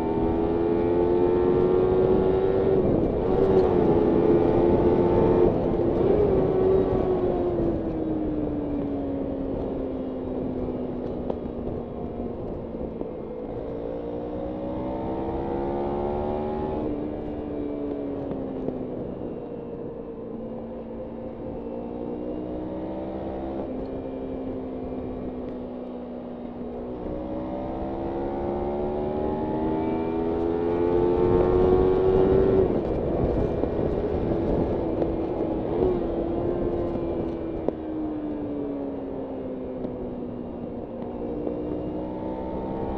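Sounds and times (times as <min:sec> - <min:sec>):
motorcycle engine revving: 0:12.8 - 0:18.8, 0:20.9 - 0:25.7, 0:26.4 - 0:42.9.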